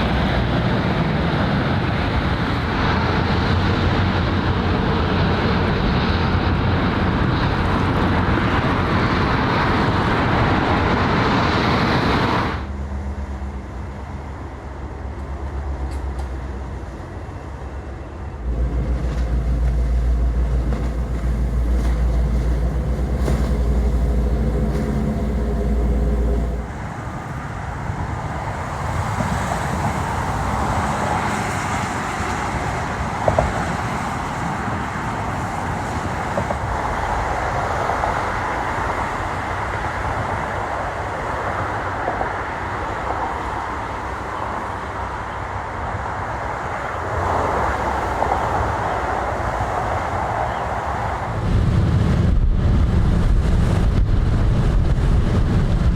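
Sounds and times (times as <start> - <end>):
distant city traffic: 0.0 - 55.9
loud low rumble: 18.4 - 27.7, 51.3 - 55.9.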